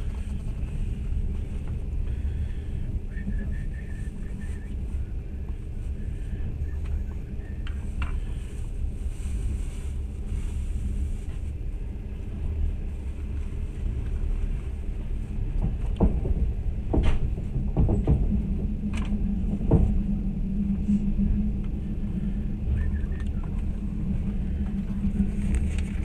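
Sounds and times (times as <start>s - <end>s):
train rumbling inside carriage: 0.0s - 26.0s.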